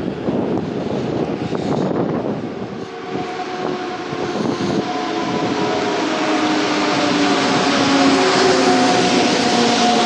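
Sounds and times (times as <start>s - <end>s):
train rumble: 0.0s - 10.0s
steady whining tones: 0.1s - 10.0s.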